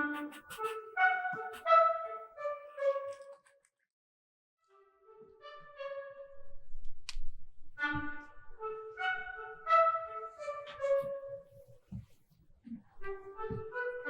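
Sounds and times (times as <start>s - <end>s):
slow instrumental melody: 0.0s - 3.4s.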